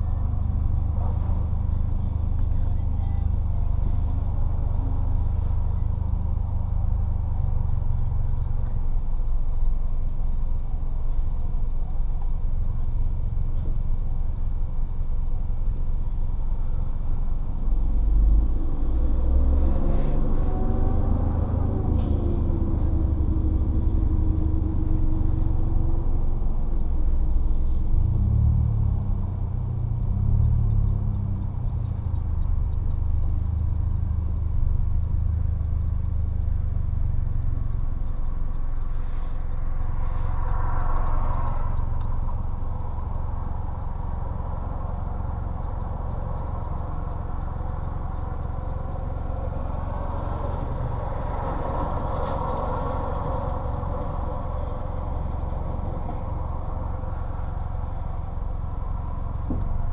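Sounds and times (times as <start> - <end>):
car engine exhaust drone: 0.0 - 59.9
passing cars rushing: 17.7 - 59.9.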